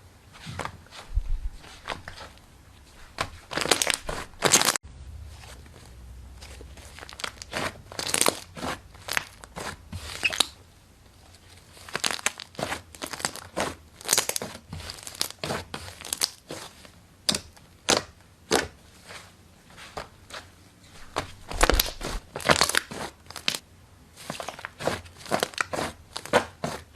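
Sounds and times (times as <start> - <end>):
slime popping and crackling: 3.6 - 4.8, 6.9 - 9.5, 11.9 - 16.4, 21.4 - 23.6.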